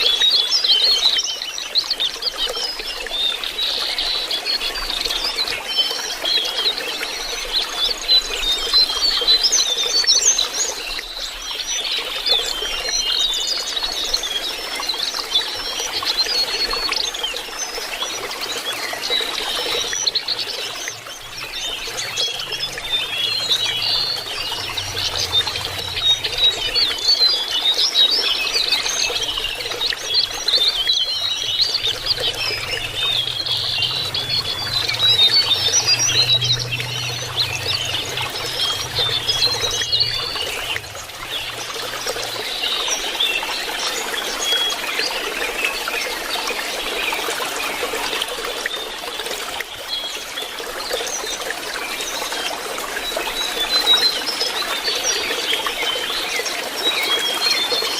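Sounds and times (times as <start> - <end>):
running water trickling: 0.0 - 57.9
bird chirping and warbling: 15.5 - 45.2.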